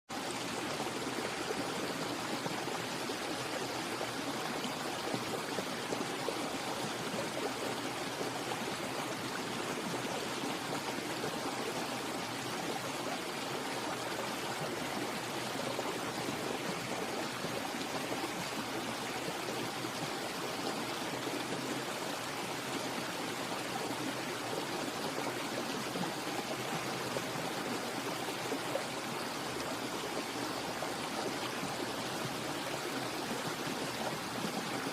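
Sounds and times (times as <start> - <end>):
stream water rushing: 0.1 - 34.9.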